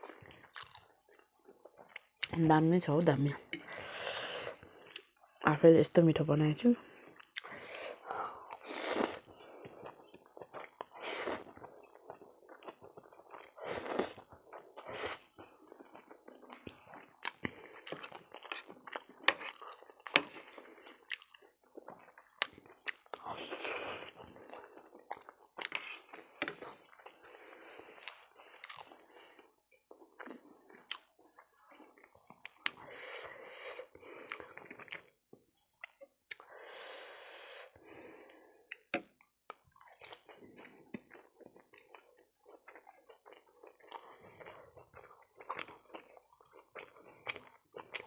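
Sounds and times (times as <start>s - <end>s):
wet chewing mouth sounds: 0.0s - 2.4s, 7.1s - 36.5s, 38.7s - 48.0s.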